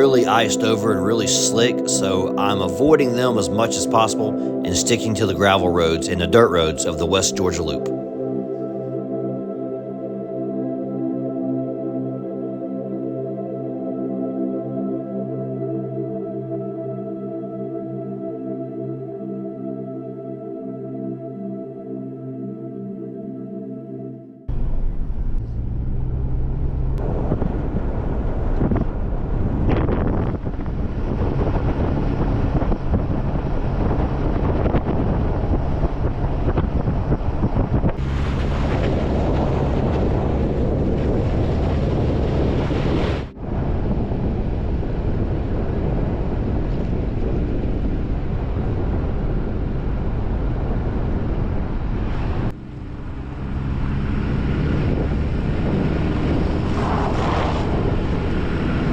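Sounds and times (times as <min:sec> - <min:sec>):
car engine running: 0:24.5 - 0:27.9
wind buffeting microphone: 0:24.6 - 0:58.9
tyres rumbling on gravel: 0:38.0 - 0:42.3.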